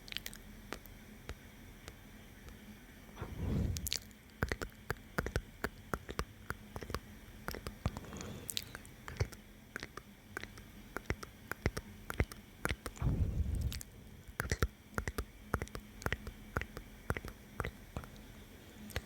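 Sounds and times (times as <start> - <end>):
wet lip and tongue clicks: 0.0 - 2.0, 3.8 - 13.0, 13.6 - 18.3.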